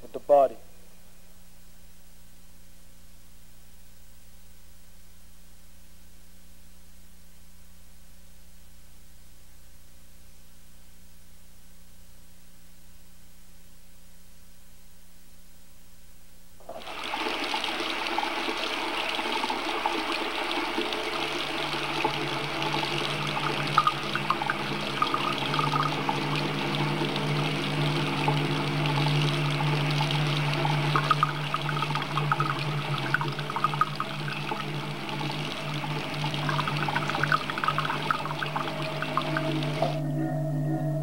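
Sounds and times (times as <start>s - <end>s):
low steady hum: 0.0s - 41.0s
hands washing with splashes: 16.7s - 40.0s
tap water running into sink: 16.7s - 40.0s.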